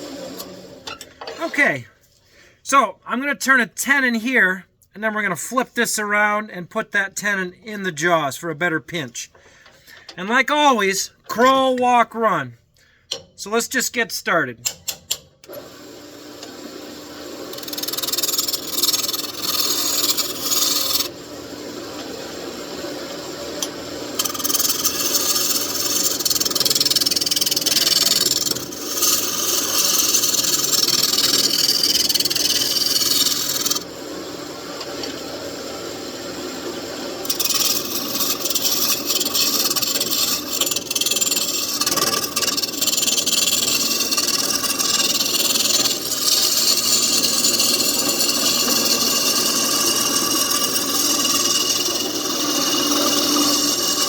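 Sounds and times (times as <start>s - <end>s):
lathe motor hum: 15.5s - 54.0s
turning tool shaving wood: 15.6s - 54.0s.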